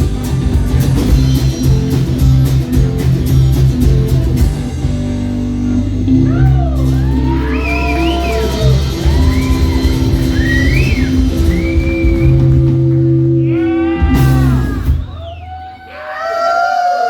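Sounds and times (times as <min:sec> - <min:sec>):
live rock band playing: 0:00.0 - 0:15.4.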